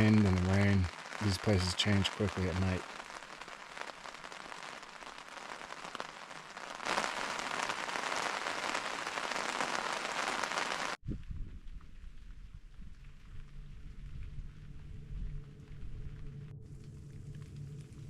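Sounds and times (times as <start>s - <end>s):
heavy rain on a tent: 0.0s - 11.0s
low rumble: 11.1s - 18.0s.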